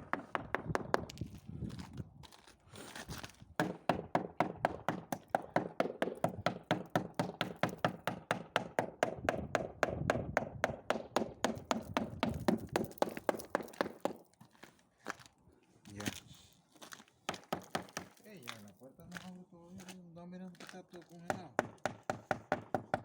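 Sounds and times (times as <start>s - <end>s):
screwdriver knocking on ice: 9.3s - 14.2s.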